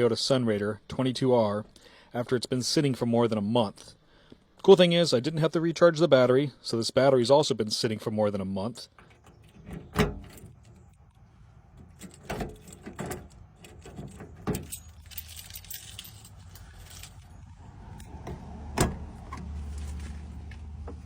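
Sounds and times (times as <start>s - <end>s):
keys jangling: 11.8s - 18.1s.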